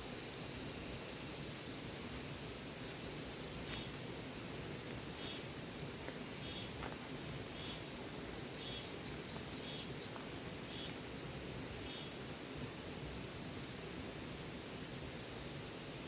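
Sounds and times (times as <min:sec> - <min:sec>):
insects calling: 0:00.0 - 0:16.0
steady hiss: 0:00.0 - 0:16.0.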